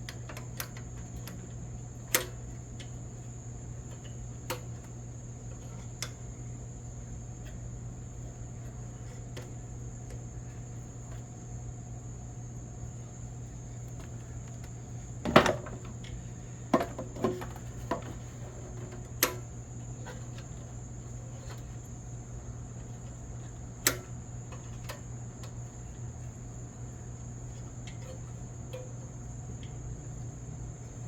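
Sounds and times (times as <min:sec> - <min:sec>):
steady low hum: 0:00.0 - 0:31.0
hard objects clicking and knocking: 0:15.2 - 0:16.0, 0:16.7 - 0:18.2.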